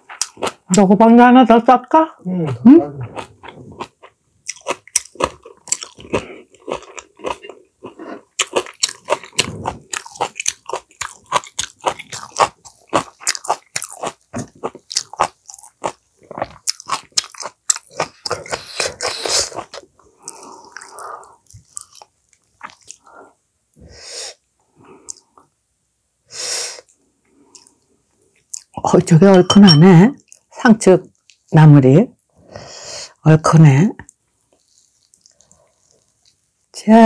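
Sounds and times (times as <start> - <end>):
chewing and biting food: 2.5 - 23.1, 34.5 - 36.5.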